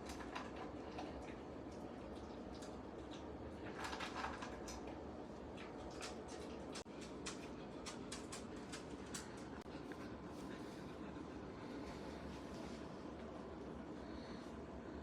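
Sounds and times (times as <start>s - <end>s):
dog eating dry food: 0.0s - 11.8s.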